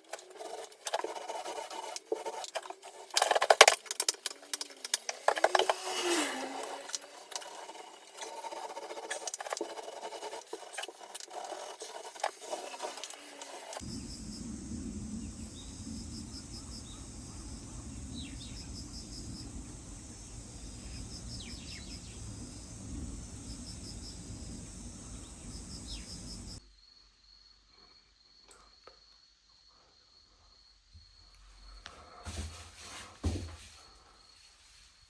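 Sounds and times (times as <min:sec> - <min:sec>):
high-pitched insect trilling: 0:13.0 - 0:26.6
low rumble: 0:13.8 - 0:26.6
insects chirping in pulsed trills: 0:13.8 - 0:27.0.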